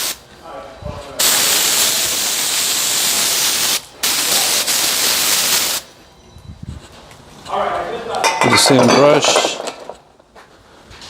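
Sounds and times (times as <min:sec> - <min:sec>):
aerosol spray hissing: 0:01.2 - 0:05.9.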